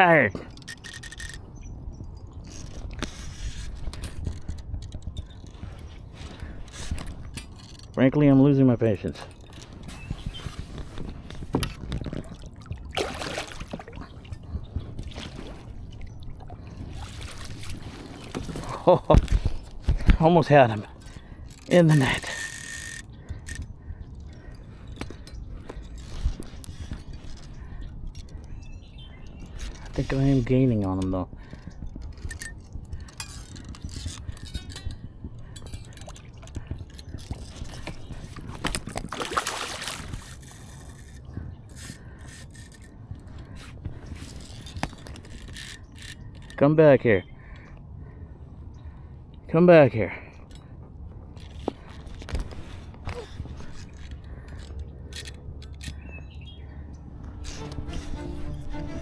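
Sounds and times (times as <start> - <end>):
fishing gear clicks and knocks: 0.3 - 46.6, 50.3 - 59.0
water sloshing and splashing: 10.6 - 21.3, 35.7 - 41.2.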